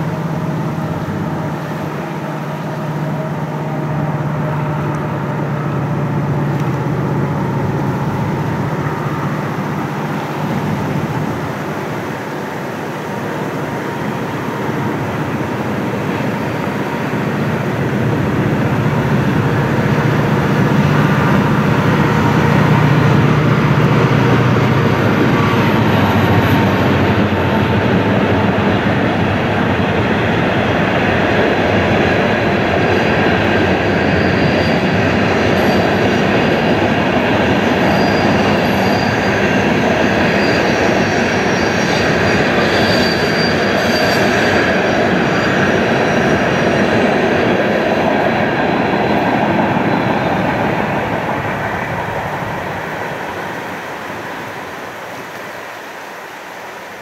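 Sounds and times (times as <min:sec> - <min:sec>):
faint high wheel squeal: 0:00.0 - 0:29.3, 0:30.5 - 0:56.5
low drone: 0:00.0 - 0:56.6
freight train rolling: 0:00.0 - 0:57.0.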